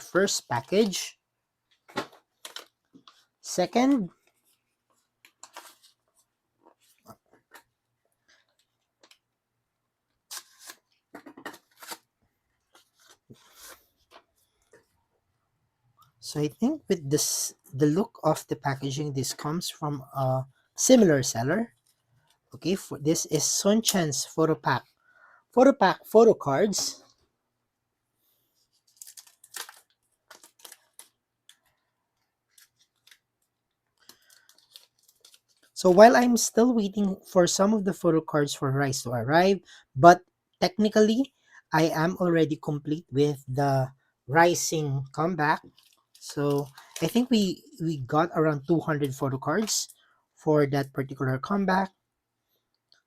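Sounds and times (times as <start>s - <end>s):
packaging tearing and rustling: 11.5s - 12.1s, 28.8s - 31.6s, 34.0s - 35.8s
plastic packaging rustling: 28.7s - 35.9s, 45.6s - 47.4s.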